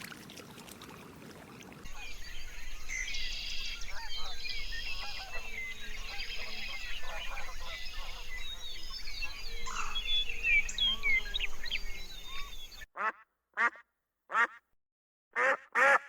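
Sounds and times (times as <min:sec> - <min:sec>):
small birds chirping: 0:00.4 - 0:12.9
duck quacking: 0:13.0 - 0:14.6, 0:15.4 - 0:16.0.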